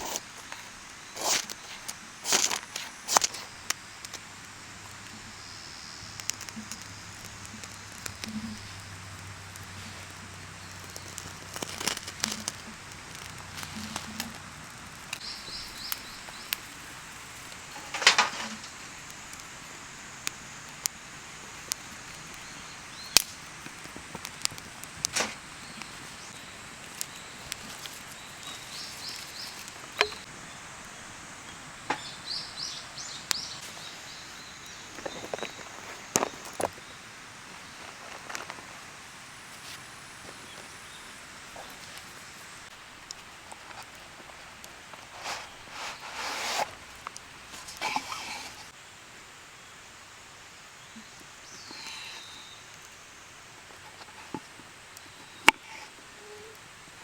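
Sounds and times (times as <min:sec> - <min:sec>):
campfire crackling: 0:00.0 - 0:57.0
bird chirping: 0:15.2 - 0:16.8, 0:25.5 - 0:37.0.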